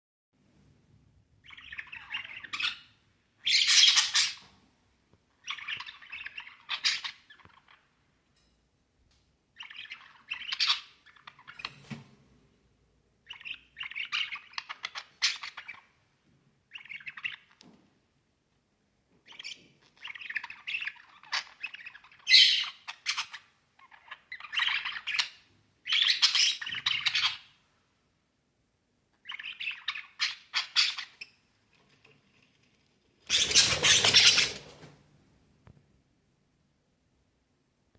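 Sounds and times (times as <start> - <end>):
budgerigars chattering and chirping: 1.4 - 4.4, 5.4 - 7.8, 9.6 - 11.6, 13.3 - 15.9, 19.3 - 27.5, 29.2 - 31.4, 33.3 - 34.7.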